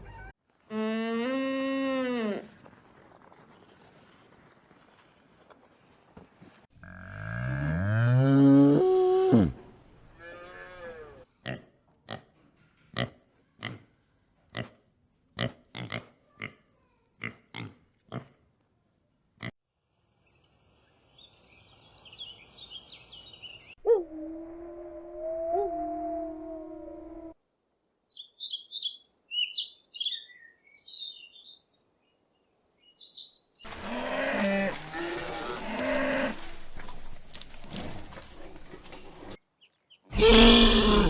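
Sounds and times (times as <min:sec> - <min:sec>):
animal call rising in pitch: 0:23.8 - 0:27.4.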